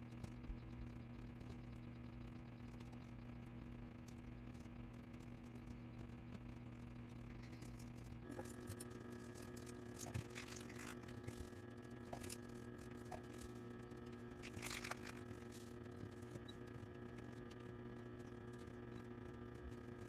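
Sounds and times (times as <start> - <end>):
low electrical hum: 0.0 - 20.0
craft materials rustling and clicking: 7.4 - 17.6.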